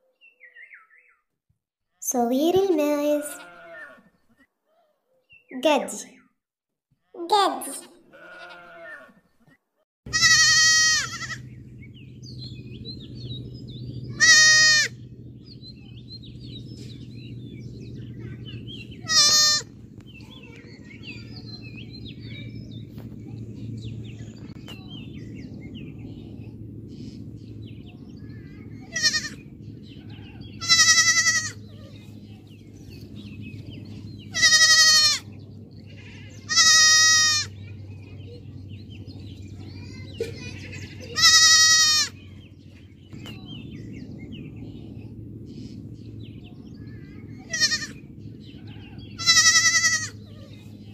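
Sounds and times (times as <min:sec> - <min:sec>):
goat kids bleating: 0:03.2 - 0:04.1, 0:07.8 - 0:09.2, 0:10.1 - 0:11.4, 0:14.1 - 0:15.0, 0:19.0 - 0:19.7, 0:28.8 - 0:29.4, 0:30.1 - 0:32.1, 0:34.3 - 0:37.6, 0:40.2 - 0:42.2, 0:47.4 - 0:48.0, 0:48.8 - 0:50.6
low background hum: 0:10.1 - 0:50.9.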